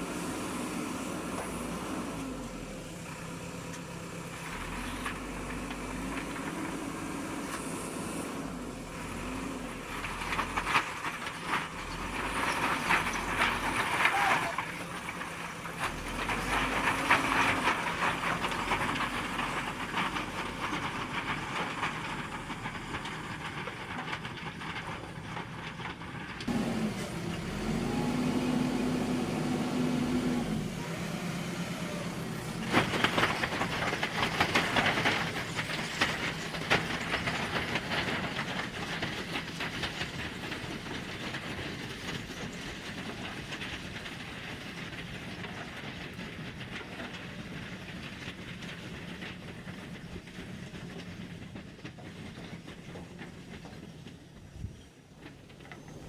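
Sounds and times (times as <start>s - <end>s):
diesel engine running: 0.0s - 56.0s
clattering and scraping: 32.3s - 54.2s.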